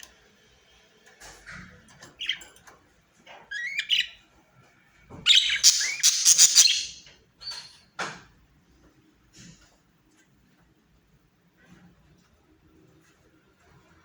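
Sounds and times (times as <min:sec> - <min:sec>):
budgerigars chirping and chattering: 0:05.3 - 0:07.6.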